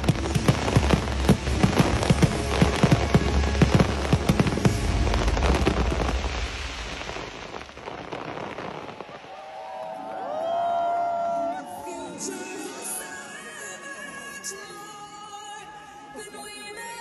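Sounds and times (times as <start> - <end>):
fireworks bangs and crackling: 0.0 - 11.2.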